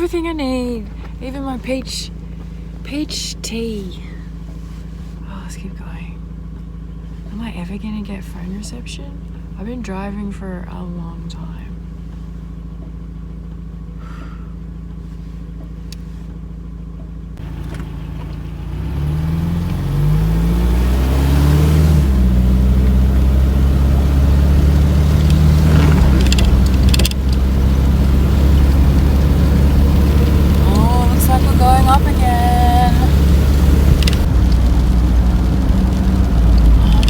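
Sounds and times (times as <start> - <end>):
van engine idling and accelerating: 0.0 - 37.0
road noise: 11.3 - 37.0.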